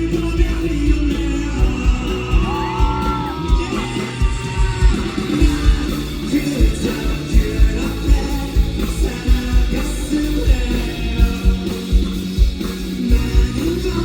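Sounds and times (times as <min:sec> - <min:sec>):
live rock band music: 0:00.0 - 0:14.0
steady drum beat: 0:00.0 - 0:14.0.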